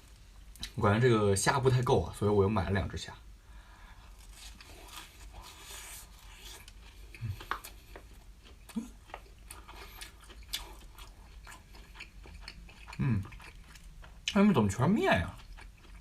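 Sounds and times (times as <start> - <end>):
crunchy chewing of fried food: 3.8 - 16.0.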